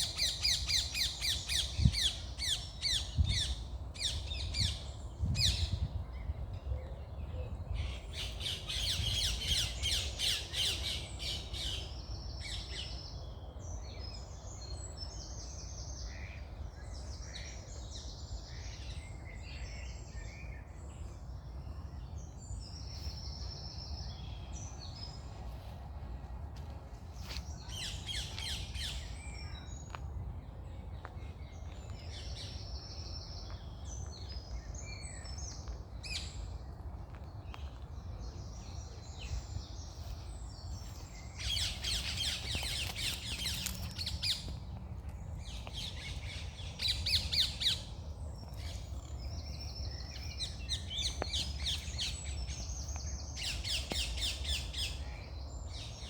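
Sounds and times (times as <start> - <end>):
birds chattering trills: 40.8 - 55.3.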